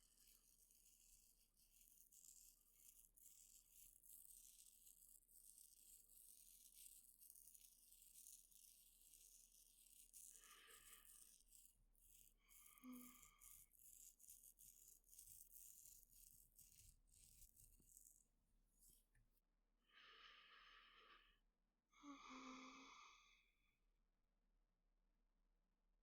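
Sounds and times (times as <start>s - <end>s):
scratching on microphone: 0.0s - 19.0s.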